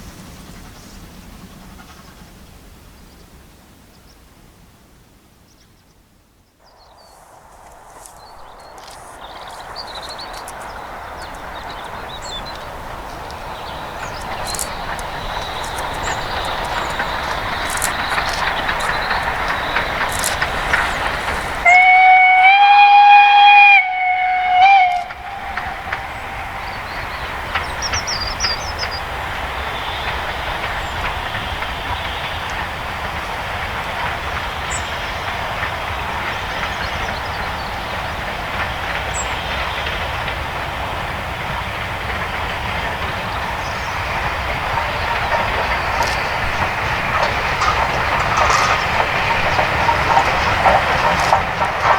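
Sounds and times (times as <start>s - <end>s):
steam train running past: 0.0s - 5.5s, 6.1s - 51.9s
steam whistle blast: 21.6s - 27.2s.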